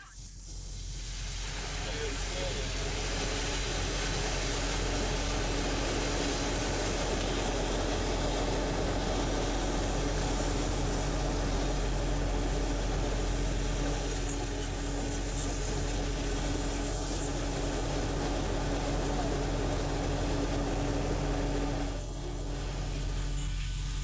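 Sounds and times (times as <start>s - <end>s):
dense rushing noise: 0.0s - 24.0s
engine running steadily: 0.0s - 24.0s.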